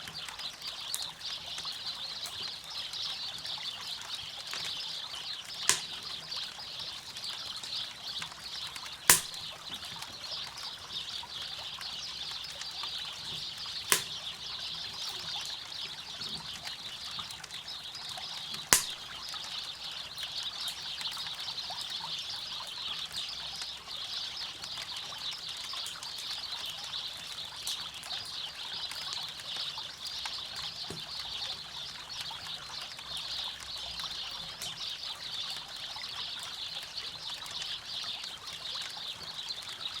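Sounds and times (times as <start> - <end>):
campfire popping: 4.4 - 15.0, 18.4 - 19.3.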